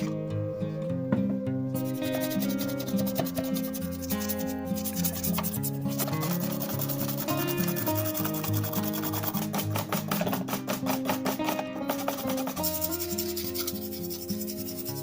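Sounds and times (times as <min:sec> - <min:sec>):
background music: 0:00.0 - 0:15.0
sandpaper rubbing back and forth: 0:01.8 - 0:15.0.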